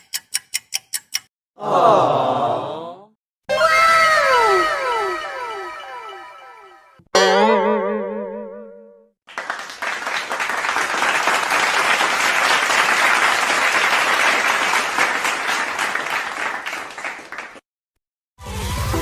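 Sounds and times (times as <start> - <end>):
wobbling boing-like tone: 7.2 - 9.1
audience applause: 9.3 - 17.6.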